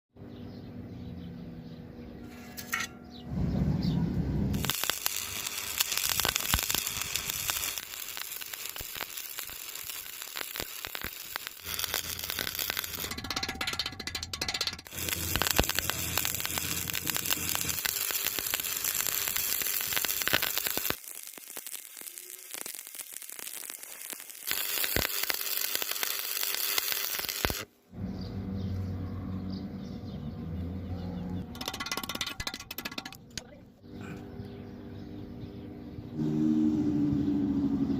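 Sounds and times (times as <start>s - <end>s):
welding arc crackling: 4.5s - 27.7s, 31.5s - 33.6s.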